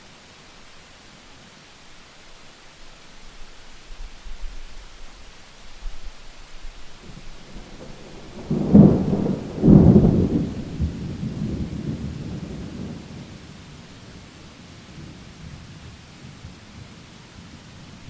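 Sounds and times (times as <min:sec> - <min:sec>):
rain hiss: 0:00.0 - 0:18.0
thunder cracking and rumbling: 0:07.0 - 0:13.6.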